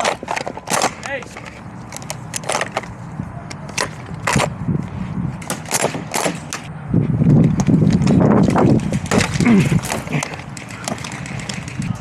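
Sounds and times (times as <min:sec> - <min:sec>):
airsoft guns firing: 0:05.4 - 0:06.6.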